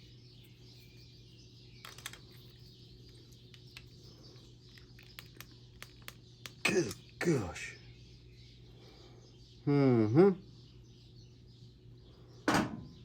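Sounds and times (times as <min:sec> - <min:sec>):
clicks and taps of hand work: 0:04.8 - 0:06.6.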